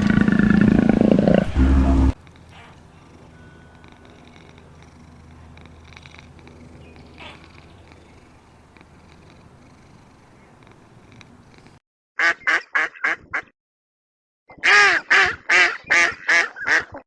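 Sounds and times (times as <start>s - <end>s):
cat purring: 0.0s - 11.8s
duck quacking: 2.5s - 2.9s.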